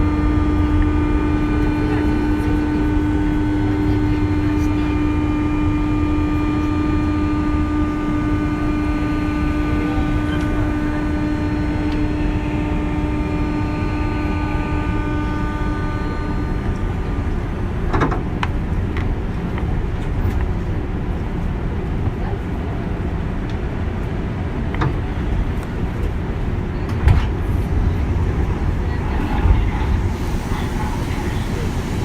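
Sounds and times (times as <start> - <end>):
electric train motor whine: 0.0 - 20.4, 27.0 - 32.0
train wheels rumbling on rail: 0.0 - 32.0.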